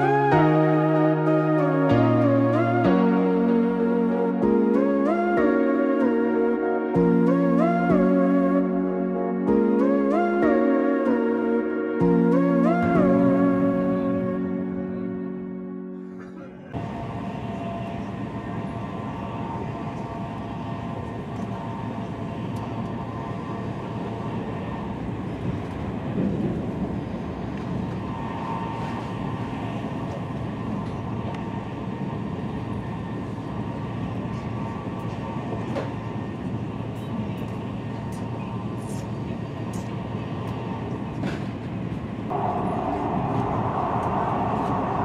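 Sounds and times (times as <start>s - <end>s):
train cabin rumble and rush: 16.1s - 45.0s
faint steady whine: 42.2s - 45.0s.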